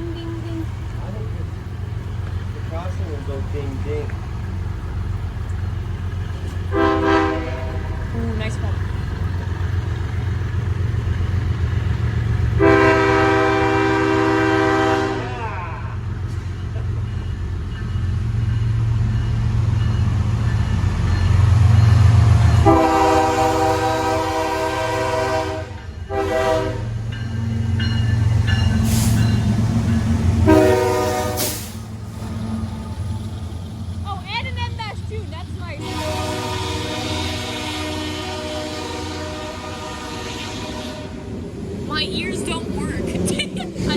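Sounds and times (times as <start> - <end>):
train rumbling past: 0.0 - 43.9
locomotive air horn chord: 6.7 - 8.2, 12.6 - 15.6, 22.6 - 26.9, 30.4 - 31.8, 35.8 - 41.3.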